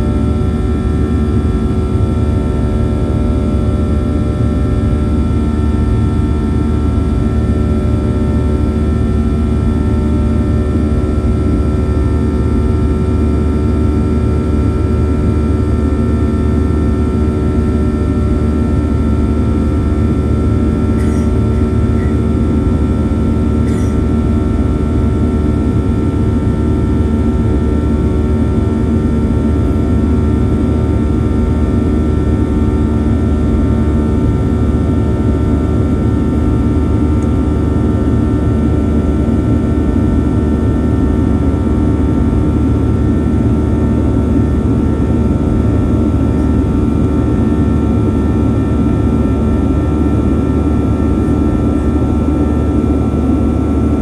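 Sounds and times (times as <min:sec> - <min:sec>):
jet engine cabin rumble: 0:16.2 - 0:54.0.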